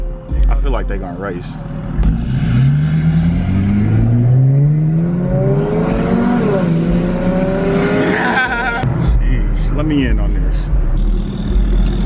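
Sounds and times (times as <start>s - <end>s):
car engine accelerating: 1.5s - 9.5s.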